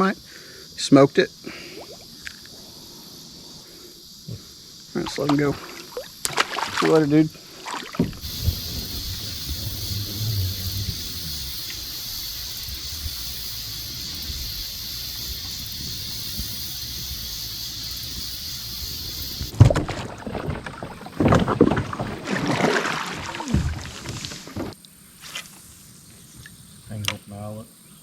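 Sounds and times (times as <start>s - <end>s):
steady high hiss: 0.0s - 19.6s
kayak gear knocking and splashing: 5.0s - 9.3s, 19.5s - 24.8s.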